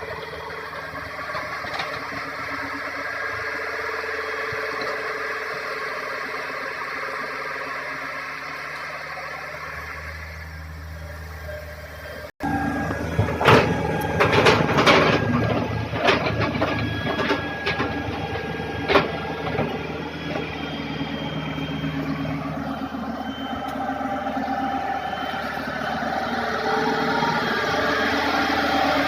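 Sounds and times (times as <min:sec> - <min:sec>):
excavator diesel engine running: 0:00.0 - 0:29.0
metal knocks and clanks: 0:13.1 - 0:20.4.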